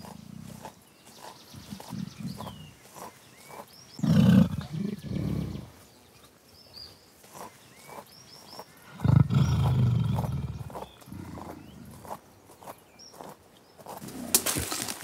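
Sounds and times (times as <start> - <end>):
small birds chirping: 0.0 - 15.0
deep animal growling: 1.5 - 2.7, 4.0 - 5.7, 8.9 - 12.1.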